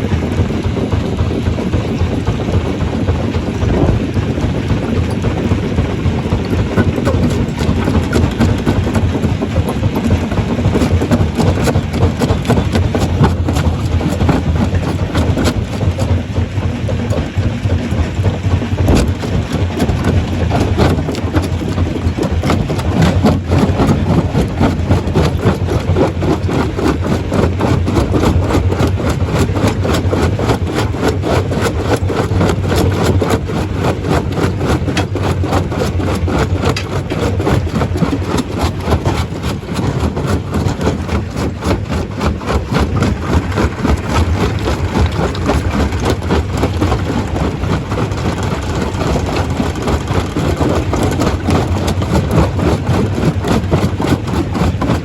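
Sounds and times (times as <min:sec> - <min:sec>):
rock knocking and rattling: 0:00.0 - 0:55.0
stone crusher drone: 0:00.0 - 0:55.0.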